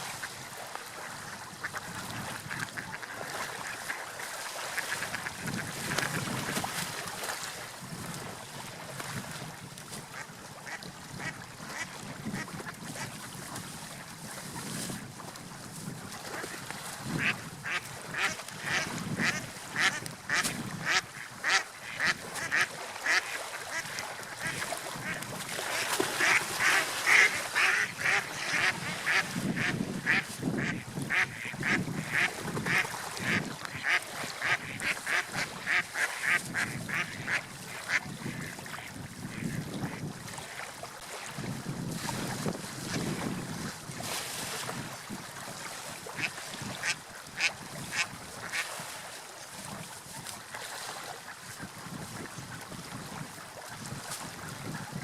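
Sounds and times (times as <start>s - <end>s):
low wash of water: 0.0s - 55.0s
ducks or geese calling: 17.2s - 38.5s.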